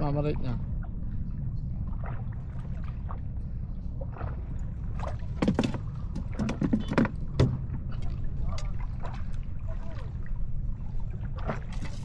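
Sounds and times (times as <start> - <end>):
low boat rumble: 0.0 - 12.0
water splashing or knocking: 5.0 - 7.8.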